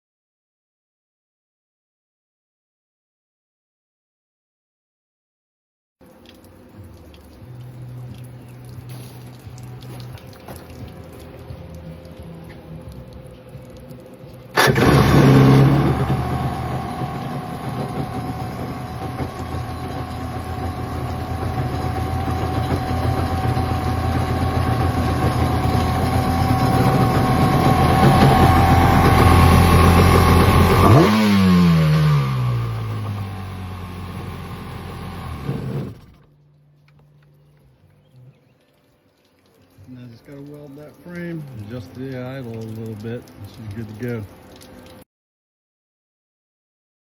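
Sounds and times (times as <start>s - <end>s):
two-stroke watercraft engine running: 9.9s - 36.4s.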